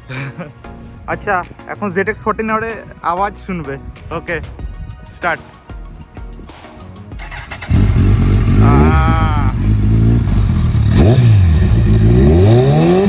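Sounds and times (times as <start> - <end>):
motorcycle engine revving: 7.2 - 13.0.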